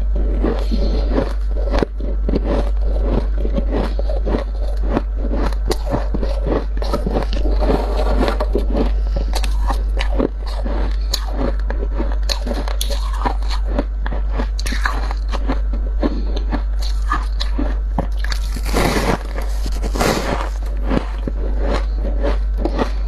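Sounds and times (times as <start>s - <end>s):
steady low hum: 0.0s - 23.0s
freezer frost scraped and crunched: 1.2s - 9.8s, 17.6s - 23.0s.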